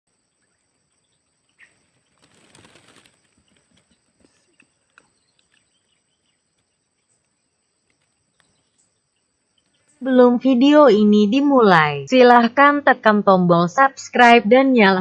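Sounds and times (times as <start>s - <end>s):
bird chirps: 0.1s - 10.1s
rustle: 0.2s - 10.0s.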